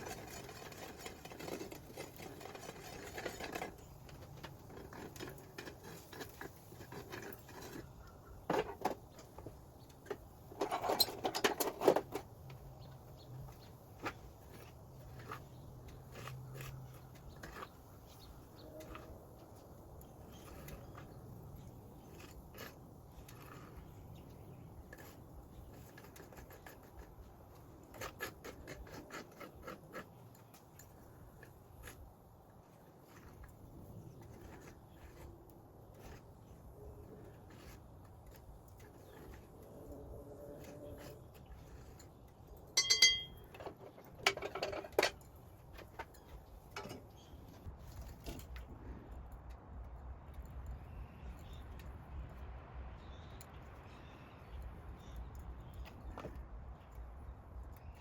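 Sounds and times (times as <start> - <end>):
metal scrap clinking: 42.8 - 45.2.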